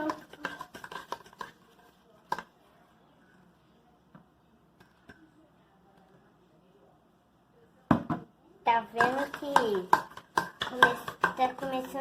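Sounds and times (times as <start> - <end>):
quiet stirring of slime: 0.0 - 7.8, 8.4 - 12.0
utensil knocking against pot: 9.0 - 11.9.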